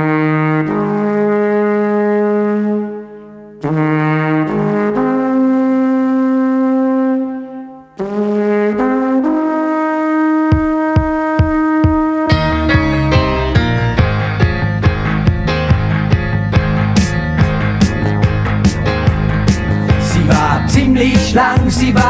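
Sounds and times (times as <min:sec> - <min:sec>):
alphorn playing slow melody: 0:09.3 - 0:21.1
low drum beat: 0:10.5 - 0:22.0.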